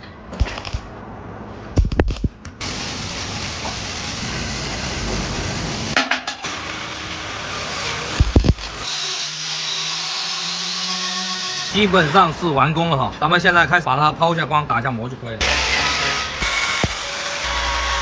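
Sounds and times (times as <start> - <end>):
steady gas hiss: 2.6 - 6.0
sharp metal knocks: 6.0 - 6.5.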